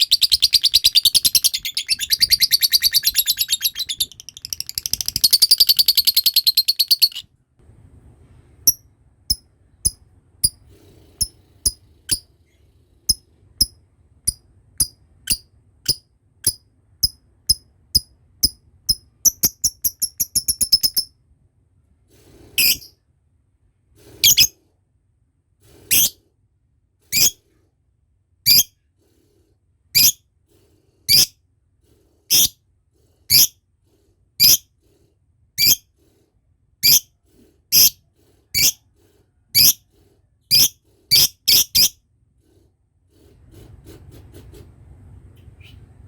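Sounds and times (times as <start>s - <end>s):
lovebird high-pitched calls: 0.0s - 7.2s, 22.6s - 22.9s, 24.2s - 24.5s, 25.9s - 26.2s, 27.1s - 27.4s, 28.5s - 28.7s, 30.0s - 30.2s, 31.1s - 31.3s, 32.3s - 32.5s, 33.3s - 33.5s, 34.4s - 34.6s, 35.6s - 35.8s, 36.8s - 37.1s, 37.7s - 38.0s, 38.6s - 38.8s, 39.6s - 39.8s, 40.5s - 42.0s.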